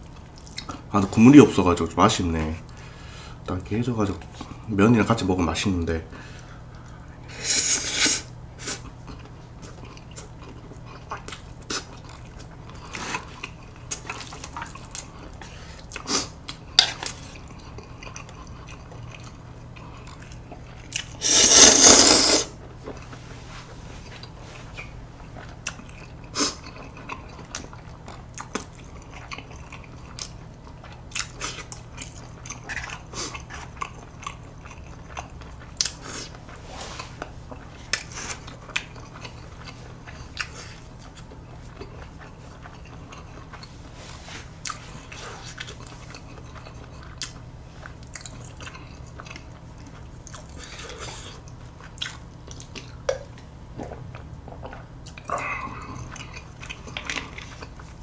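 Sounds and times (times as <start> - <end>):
chewing with wet mouth clicks: 0.0 - 0.8, 8.8 - 21.2, 24.2 - 43.8, 44.6 - 58.0.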